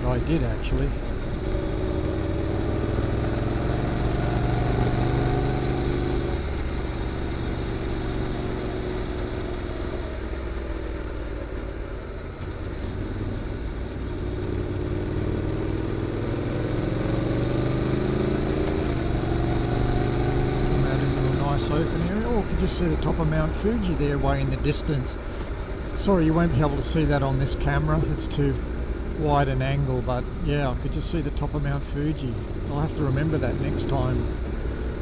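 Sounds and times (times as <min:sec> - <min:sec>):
motorcycle engine under power: 0:00.0 - 0:35.0.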